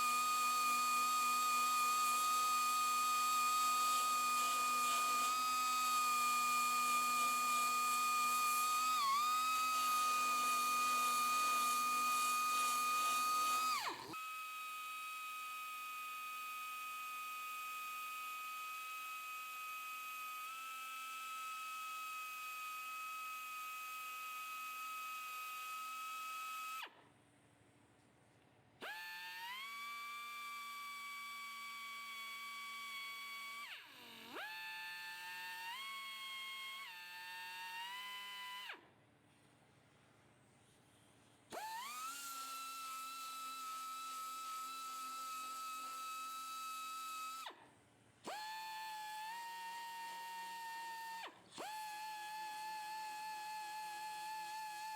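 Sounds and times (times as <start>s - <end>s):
grinder whining: 0.0s - 18.9s, 41.5s - 47.5s, 48.2s - 54.9s.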